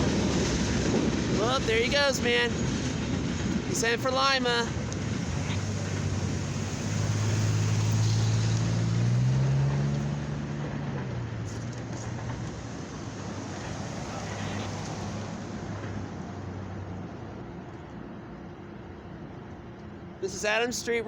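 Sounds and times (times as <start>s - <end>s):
outdoor background noise: 0.0s - 21.0s
vehicle engine passing by: 5.2s - 16.8s.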